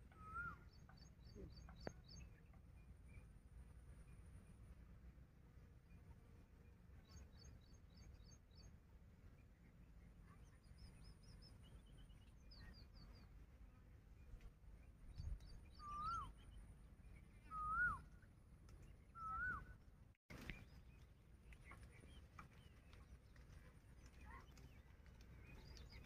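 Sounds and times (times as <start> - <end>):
whistled bird calls: 0.0 - 2.3, 15.2 - 16.6, 17.3 - 18.2, 19.1 - 19.8
birds chirping: 20.3 - 26.0.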